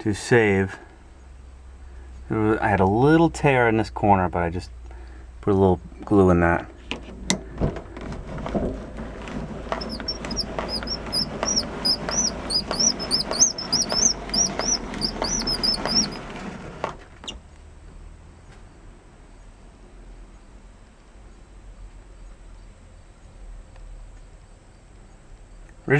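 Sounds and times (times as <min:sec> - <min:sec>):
small bird chirping: 0:09.7 - 0:16.5.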